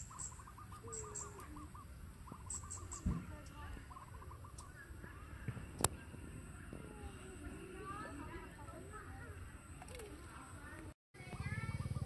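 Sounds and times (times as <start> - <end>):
bird calling in rapid notes: 0.0 - 3.1, 11.4 - 12.0.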